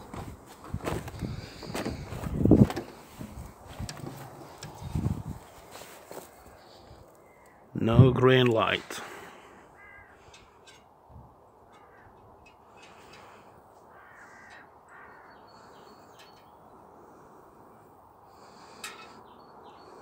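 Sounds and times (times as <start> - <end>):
faint short bird calls: 6.5 - 7.7, 9.4 - 10.8, 11.7 - 17.3.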